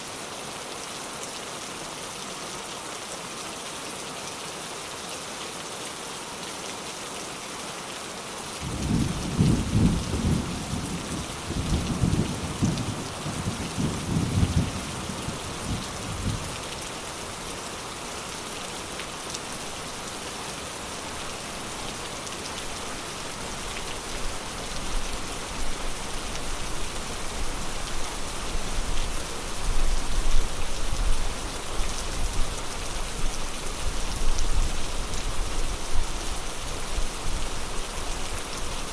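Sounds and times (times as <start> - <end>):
steady rain falling: 0.0 - 38.9
thunder rumbling: 8.6 - 16.5.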